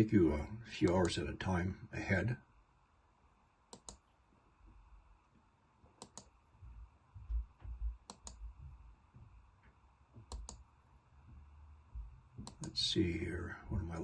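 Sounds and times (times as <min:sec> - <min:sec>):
computer mouse clicks: 0:00.9 - 0:01.1, 0:03.7 - 0:04.1, 0:05.9 - 0:06.4, 0:07.9 - 0:08.4, 0:10.2 - 0:10.7, 0:12.4 - 0:12.8
soft low thumps: 0:06.6 - 0:10.6, 0:11.2 - 0:12.8.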